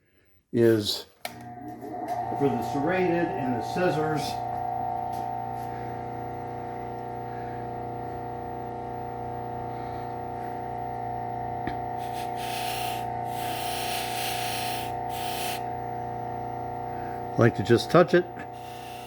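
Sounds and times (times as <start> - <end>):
belt sander motor humming: 1.3 - 19.0
steel hissing on buffing wheel: 11.9 - 15.8, 17.1 - 19.0.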